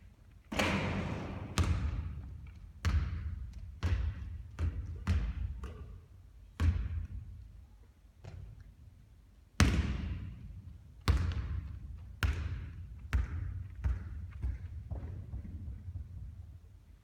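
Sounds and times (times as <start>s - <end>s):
basketball bouncing on court: 0.5s - 6.0s, 6.6s - 7.3s, 9.6s - 10.4s, 11.0s - 16.3s.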